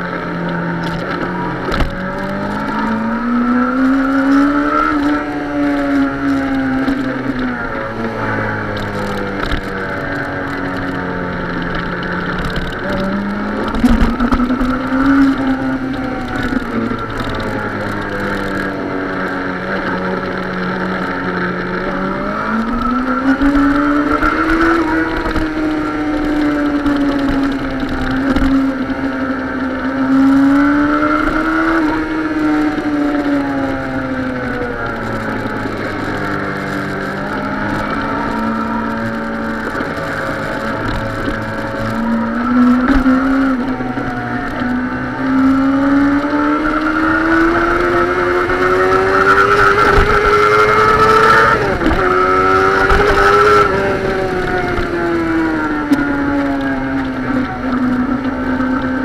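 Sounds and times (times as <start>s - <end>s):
motorcycle engine revving: 0.0s - 59.0s
wind and road noise: 0.0s - 59.0s.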